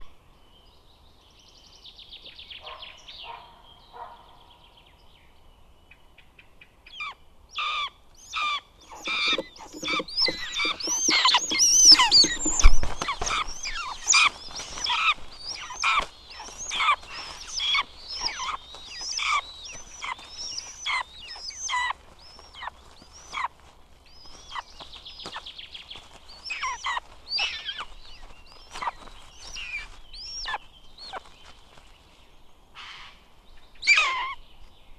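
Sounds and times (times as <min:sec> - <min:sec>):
buzzards calling: 0:08.4 - 0:23.5.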